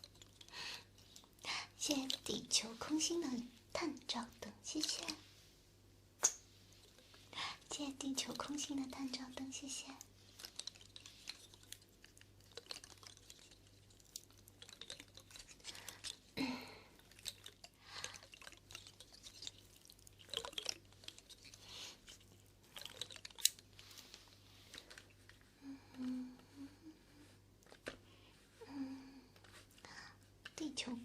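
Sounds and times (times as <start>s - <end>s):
wet mouth clicks and smacks: 6.2s - 7.1s.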